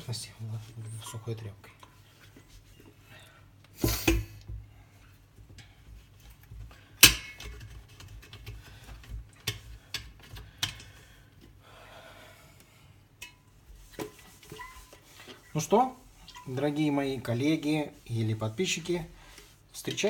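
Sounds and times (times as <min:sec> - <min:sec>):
cloth wiping metal kettle: 0:03.8 - 0:11.6, 0:13.2 - 0:20.0.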